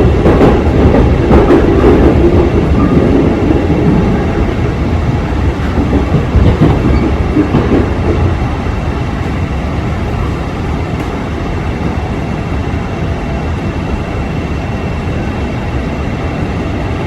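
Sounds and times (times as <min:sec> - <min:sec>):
clatter over the track: 0:00.0 - 0:04.3, 0:05.1 - 0:12.1
train wheels rumbling on rails: 0:00.0 - 0:17.0.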